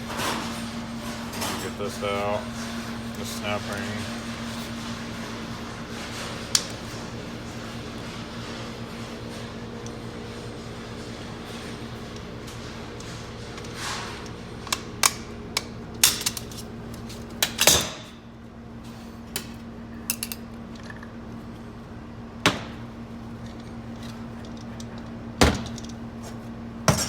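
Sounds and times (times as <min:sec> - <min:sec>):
metal tools clicking and clinking: 0:20.1 - 0:20.9.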